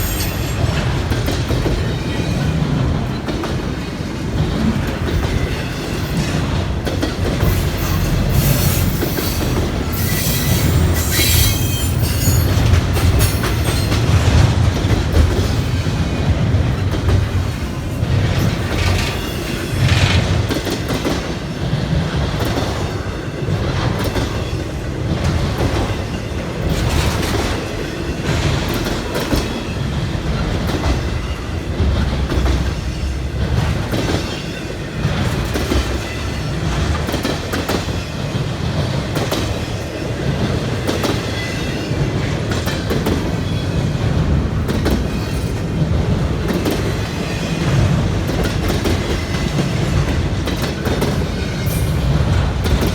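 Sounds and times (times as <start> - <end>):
freight train rumble: 0.0 - 52.9
wheels clacking over rail joints: 0.0 - 52.9.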